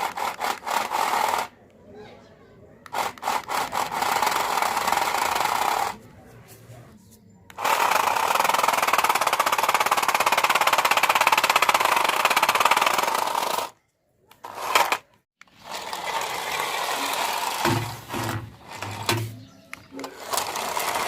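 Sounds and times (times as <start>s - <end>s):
toy car motor buzzing rattle: 0.0s - 1.6s, 2.9s - 6.0s, 7.5s - 13.8s, 14.4s - 19.3s, 20.0s - 21.0s.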